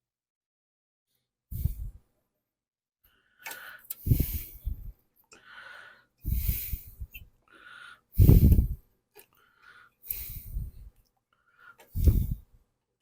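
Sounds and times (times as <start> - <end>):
heavy breathing: 3.1 - 12.6.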